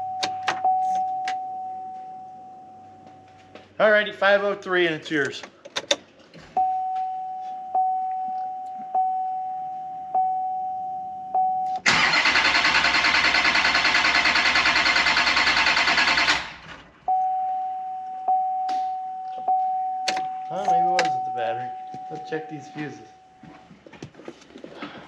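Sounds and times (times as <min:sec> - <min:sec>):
vehicle warning chime: 0:00.0 - 0:03.5, 0:06.6 - 0:12.2, 0:17.1 - 0:23.8
engine cranking by starter: 0:11.8 - 0:17.0.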